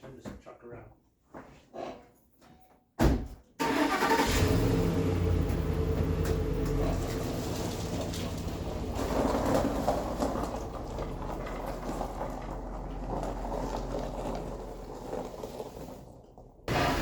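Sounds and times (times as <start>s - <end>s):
pickup truck engine running: 4.0s - 15.6s.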